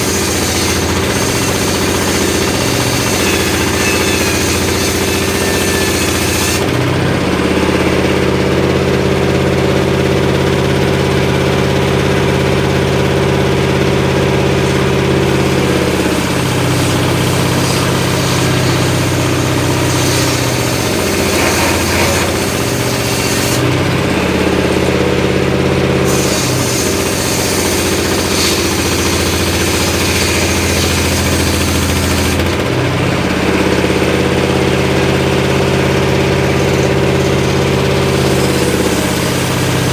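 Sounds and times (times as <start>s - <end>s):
saw blade cutting hiss: 0.0s - 6.7s, 14.6s - 23.7s, 26.0s - 32.6s, 36.3s - 39.9s
engine-driven circular saw running: 0.0s - 39.9s.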